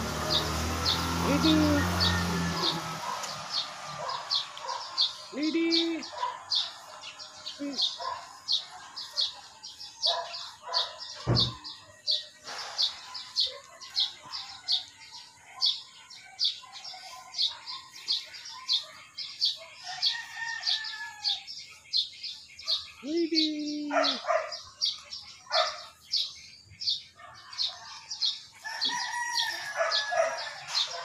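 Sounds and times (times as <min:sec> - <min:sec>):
small bird chirping: 0:00.3 - 0:31.0
low thump: 0:11.2 - 0:11.6.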